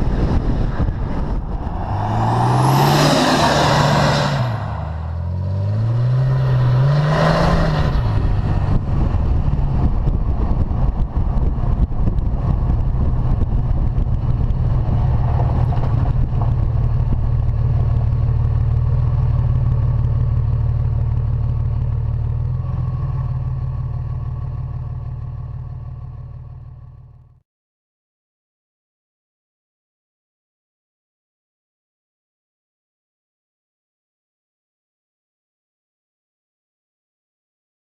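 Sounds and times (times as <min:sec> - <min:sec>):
truck engine revving and idling: 0:00.1 - 0:27.3.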